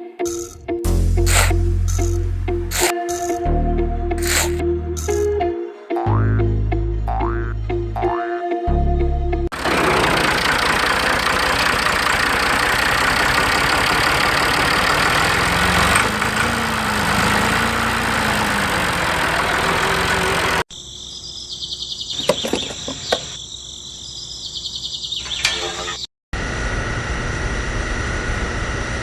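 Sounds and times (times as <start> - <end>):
engine rumbling: 0.4 - 5.4, 9.1 - 20.7.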